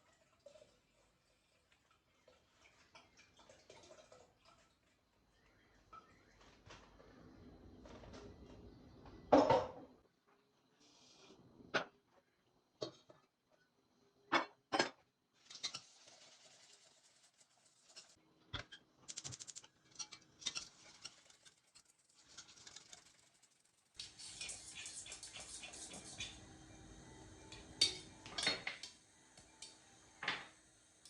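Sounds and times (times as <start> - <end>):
dishes knocking and clinking: 9.3 - 9.9, 27.6 - 28.9, 30.2 - 30.6.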